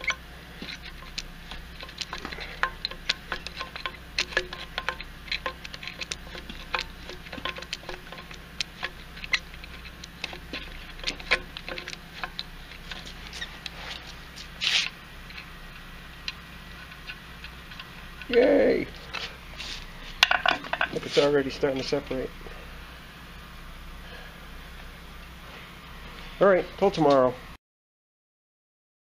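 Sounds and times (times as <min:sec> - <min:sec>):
short scraping hiss: 0:13.2 - 0:15.0, 0:19.0 - 0:20.2.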